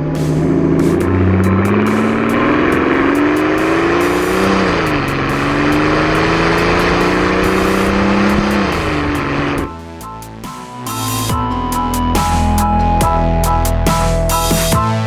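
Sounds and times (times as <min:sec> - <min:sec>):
car engine accelerating hard: 0:00.0 - 0:09.7.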